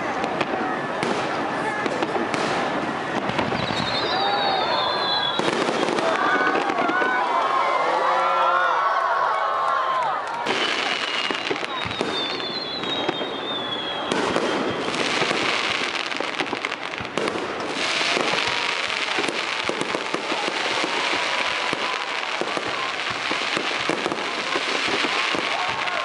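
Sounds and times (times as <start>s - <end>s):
falling firework whistle: 2.3s - 7.2s, 10.5s - 26.0s
crackling of sparks: 14.2s - 26.0s.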